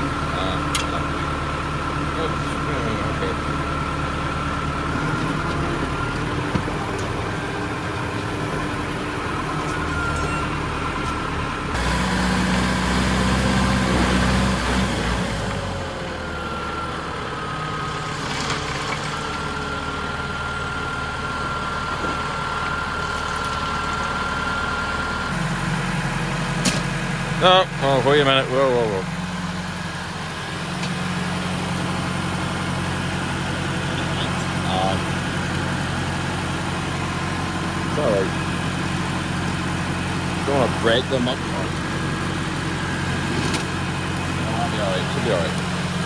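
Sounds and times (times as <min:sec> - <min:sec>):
tractor diesel engine running: 0:00.0 - 0:46.0.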